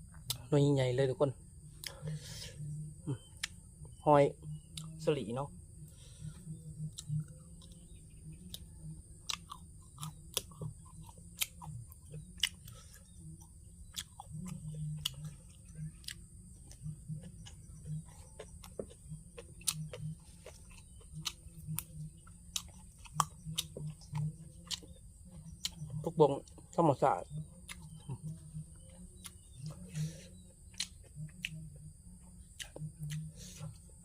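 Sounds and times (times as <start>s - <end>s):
person chewing wetly: 5.9s - 26.7s, 27.6s - 33.9s.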